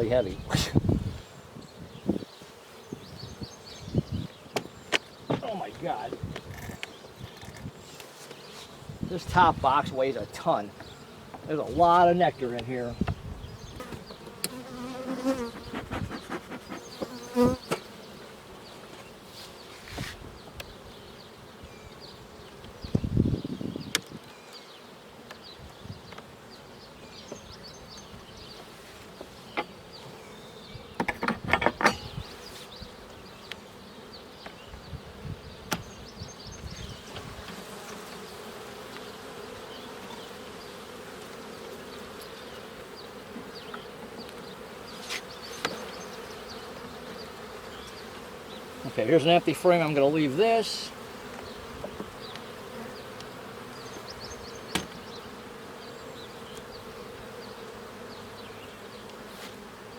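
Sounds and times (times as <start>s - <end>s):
bees buzzing: 0.0s - 31.2s, 31.8s - 59.9s
wooden hive boxes knocking: 4.5s - 6.5s, 54.6s - 55.2s.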